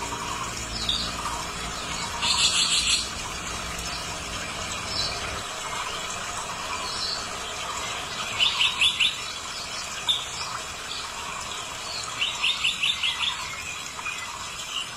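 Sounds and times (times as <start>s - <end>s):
bird chirping: 2.0s - 3.1s.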